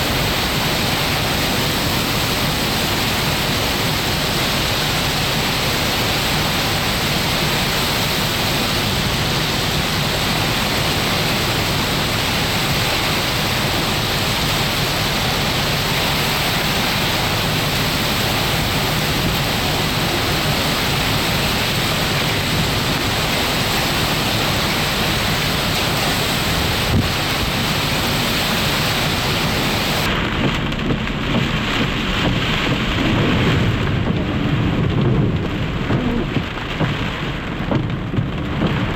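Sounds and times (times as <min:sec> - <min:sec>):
heavy rain pouring: 0:00.0 - 0:38.9
low rumble: 0:13.6 - 0:38.9.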